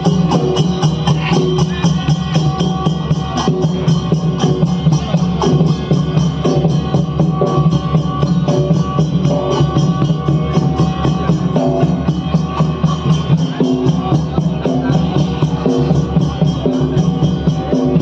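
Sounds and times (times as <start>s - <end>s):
fast steady drumming: 0.0s - 18.0s.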